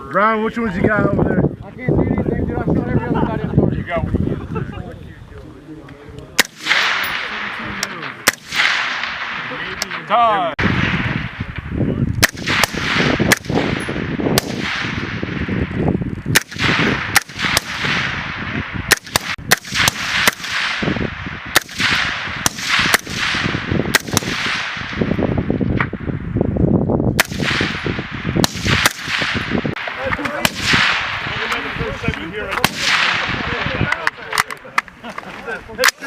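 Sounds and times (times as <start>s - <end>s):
gunshots with echo: 6.4s - 11.6s, 12.2s - 26.0s, 27.2s - 31.9s, 32.6s - 34.0s.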